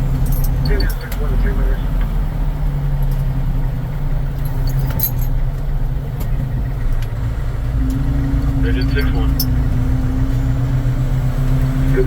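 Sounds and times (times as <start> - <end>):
fire truck engine droning: 0.0 - 12.0.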